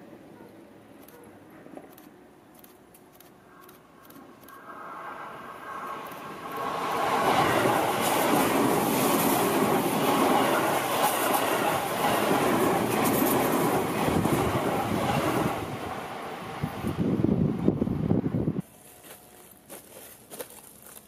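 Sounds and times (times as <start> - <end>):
electric train passing: 3.4 - 18.6.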